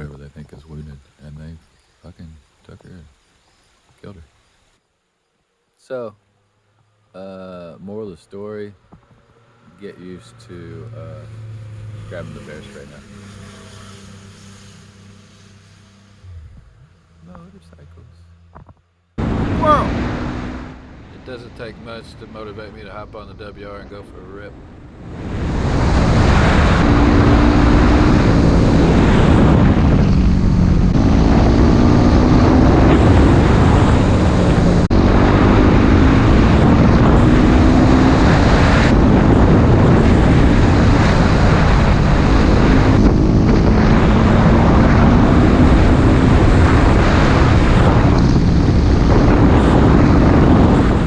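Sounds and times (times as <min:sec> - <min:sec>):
motorcycle engine shifting gears: 0:08.8 - 0:22.8, 0:24.5 - 0:51.0
wind noise on microphone: 0:16.2 - 0:17.0, 0:18.5 - 0:51.0.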